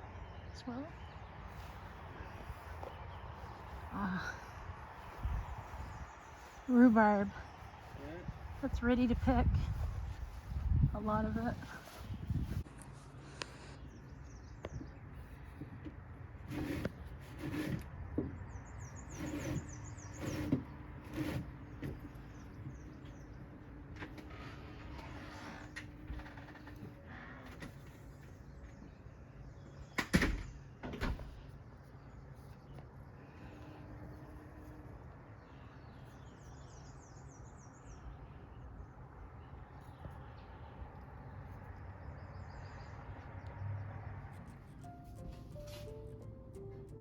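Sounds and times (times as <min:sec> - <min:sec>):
footsteps in garden: 0:00.6 - 0:17.2, 0:44.3 - 0:47.0.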